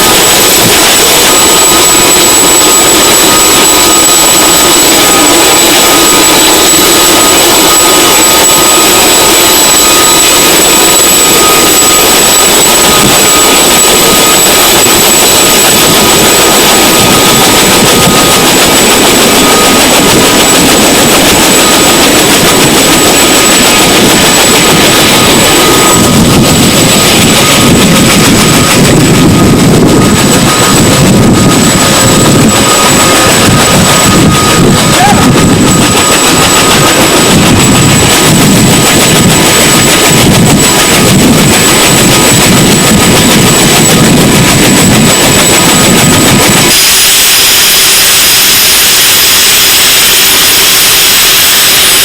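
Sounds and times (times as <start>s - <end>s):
helicopter engines and rotors: 0.0s - 52.0s
high turbine whines: 0.0s - 52.0s.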